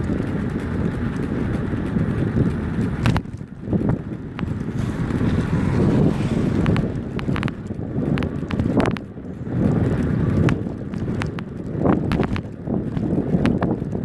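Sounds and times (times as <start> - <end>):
sharp clicks and knocks: 0.0 - 9.2, 9.8 - 14.0
wind buffeting microphone: 0.0 - 14.0.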